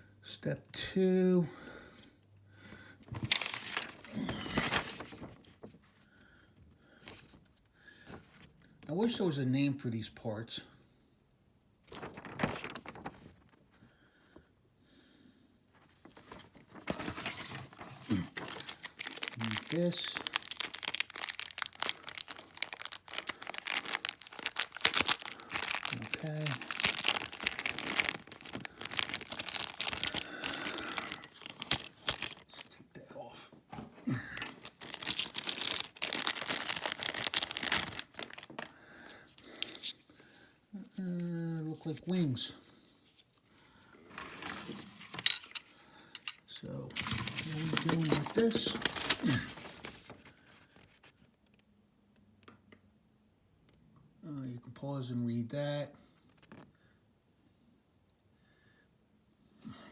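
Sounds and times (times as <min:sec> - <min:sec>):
plastic packaging crinkling: 0:03.2 - 0:05.6, 0:12.0 - 0:13.2, 0:16.1 - 0:32.8, 0:34.0 - 0:40.1, 0:44.2 - 0:51.1.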